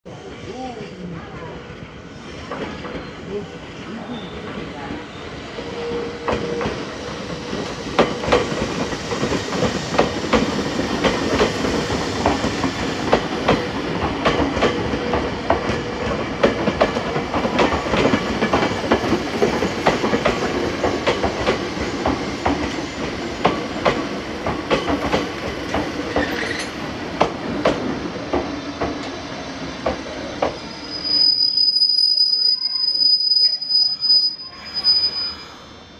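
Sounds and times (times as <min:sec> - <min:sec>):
train rumble: 0:00.1 - 0:31.4
electric train wheels clacking: 0:02.1 - 0:03.2, 0:04.4 - 0:31.4
high brake squeal: 0:04.0 - 0:07.7, 0:26.2 - 0:26.8, 0:30.5 - 0:35.9.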